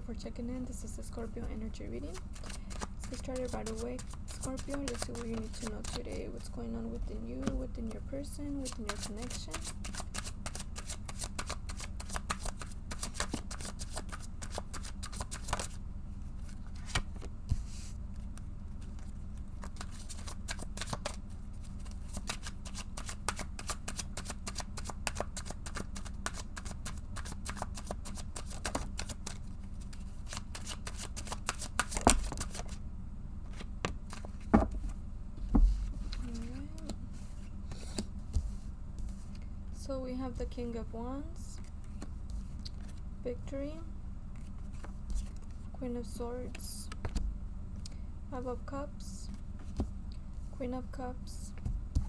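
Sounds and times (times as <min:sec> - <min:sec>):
steady low hum: 0:00.0 - 0:52.0
cards being shuffled: 0:02.1 - 0:06.6, 0:07.4 - 0:15.8, 0:16.4 - 0:32.8, 0:33.4 - 0:39.4, 0:41.6 - 0:43.1, 0:44.4 - 0:45.6.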